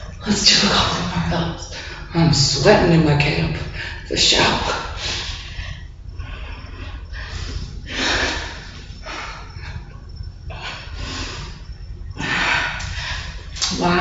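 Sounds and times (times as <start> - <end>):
woman breathing hard: 5.0 - 13.6.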